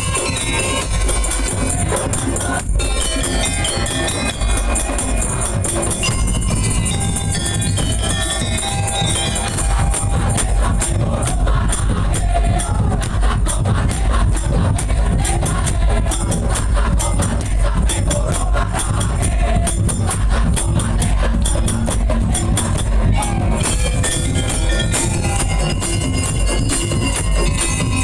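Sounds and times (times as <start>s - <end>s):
fast high percussion strikes: 0.0s - 28.0s
heavy drums: 0.0s - 28.0s
melody line: 2.8s - 10.7s, 23.6s - 28.0s.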